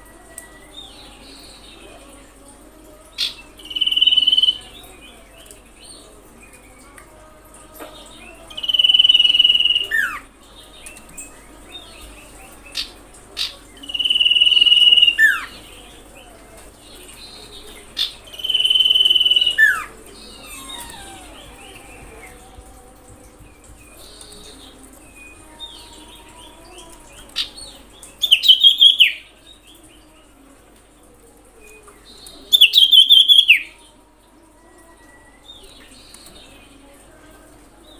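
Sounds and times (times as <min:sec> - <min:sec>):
bird whistling call: 0:18.4 - 0:21.8.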